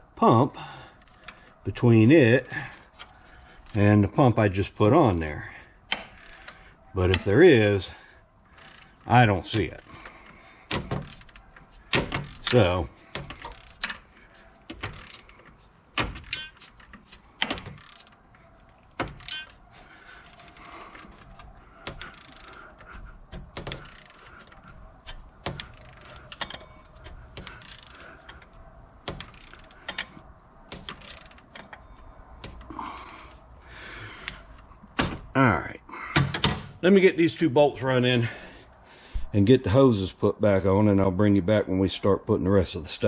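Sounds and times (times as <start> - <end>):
tools and metal parts clinking: 5.5 - 33.4.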